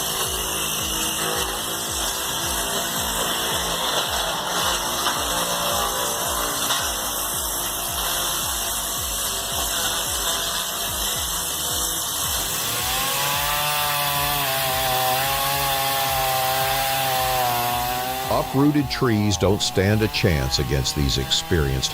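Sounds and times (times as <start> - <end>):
chainsaw cutting at high revs: 0.0 - 21.9.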